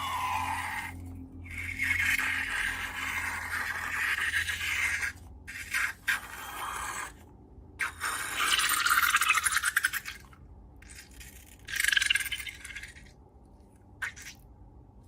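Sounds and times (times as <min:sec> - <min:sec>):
slime scraping and rubbing: 0:00.0 - 0:13.1.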